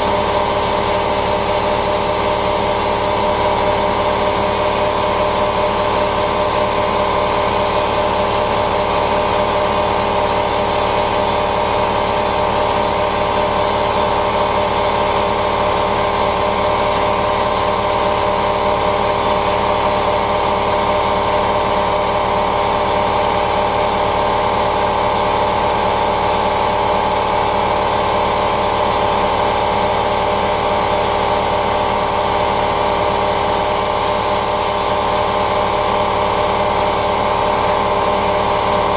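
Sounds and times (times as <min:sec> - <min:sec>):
spray painting hiss: 0:02.8 - 0:03.2.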